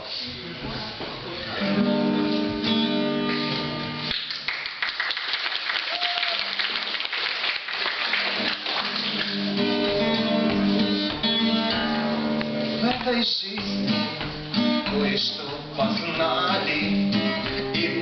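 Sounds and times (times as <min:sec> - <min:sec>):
acoustic guitar strumming chords: 0:01.6 - 0:04.2, 0:08.4 - 0:18.0
audience applause: 0:04.1 - 0:09.8.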